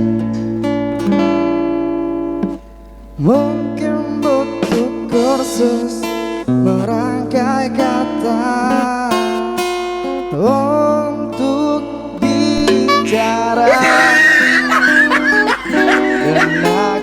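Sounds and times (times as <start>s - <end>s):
acoustic guitar strumming: 0.0s - 17.0s
person singing: 10.4s - 17.0s.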